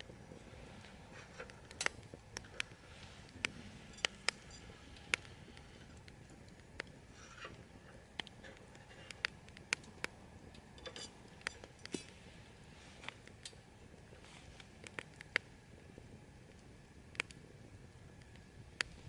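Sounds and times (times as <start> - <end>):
low steady hiss: 0.0 - 19.0
light ringing clinks: 3.8 - 5.1, 10.6 - 12.1.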